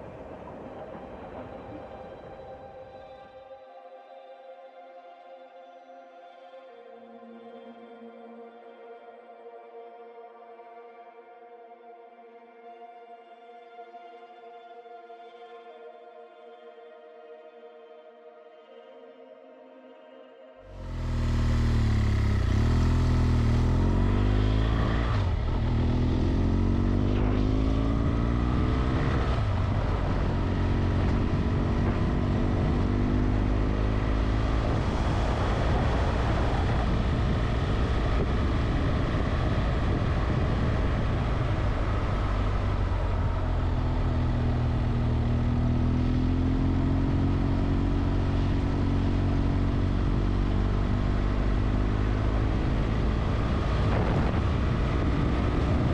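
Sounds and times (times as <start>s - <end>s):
motorcycle engine accelerating: 20.7s - 55.9s.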